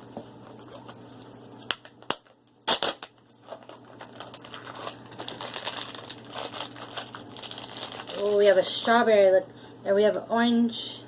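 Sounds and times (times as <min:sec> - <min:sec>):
plastic packaging clicks: 0:01.7 - 0:08.6
plastic packaging snapping: 0:01.7 - 0:08.7
packaging crinkling: 0:01.7 - 0:09.1.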